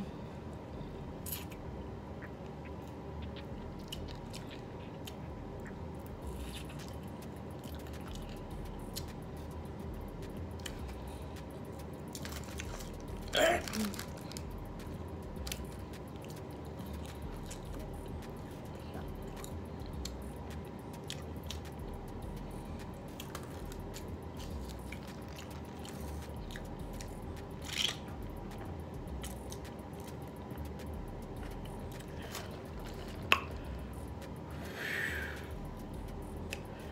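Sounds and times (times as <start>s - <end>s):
steady low hum: 0.0s - 36.9s
person chewing chicken wings: 2.2s - 9.2s, 12.1s - 34.1s.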